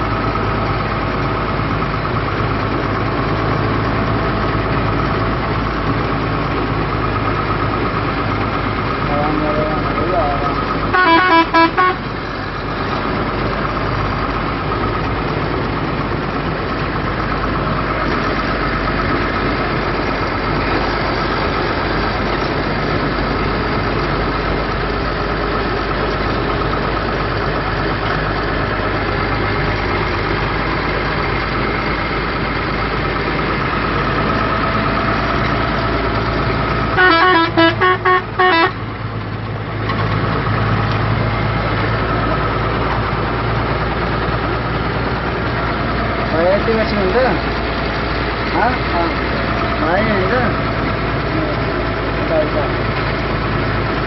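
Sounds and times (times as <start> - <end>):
truck engine running: 0.0 - 54.0
horn short toots: 10.9 - 12.0, 37.0 - 38.8.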